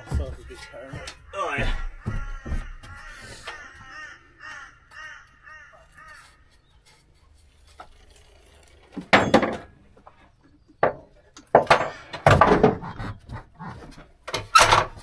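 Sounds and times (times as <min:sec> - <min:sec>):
crow cawing: 0:00.5 - 0:06.5.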